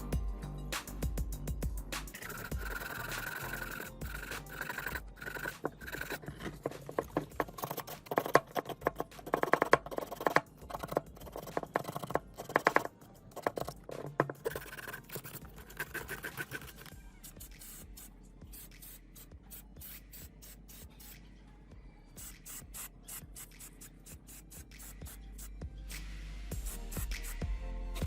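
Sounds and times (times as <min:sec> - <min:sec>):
hand scraping rusty metal: 0:02.2 - 0:16.9.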